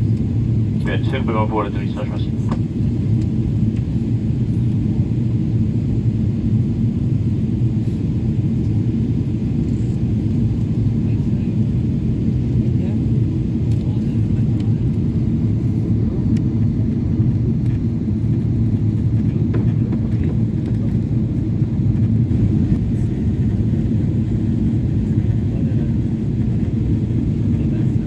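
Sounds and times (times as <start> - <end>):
airplane engines rumbling: 0.0 - 28.0.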